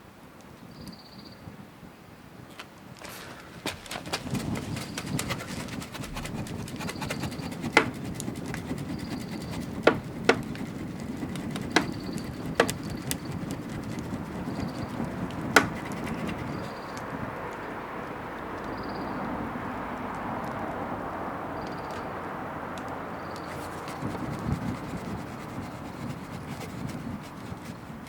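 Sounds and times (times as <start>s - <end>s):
burning wood popping: 3.0s - 17.1s.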